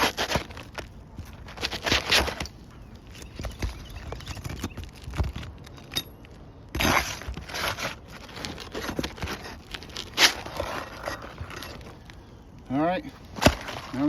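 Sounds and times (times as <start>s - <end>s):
pry bar scraping under shingles: 0.0s - 14.0s.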